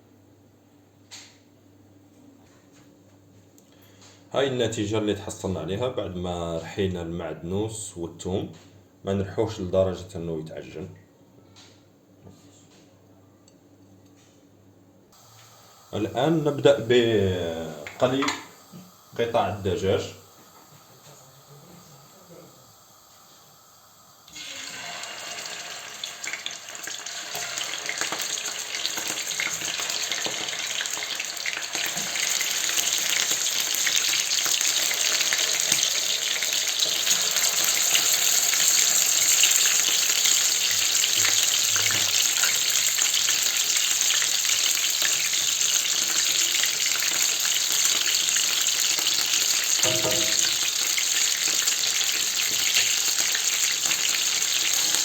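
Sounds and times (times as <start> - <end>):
chicken frying in oil: 15.2 - 55.0
short knock: 49.8 - 50.5.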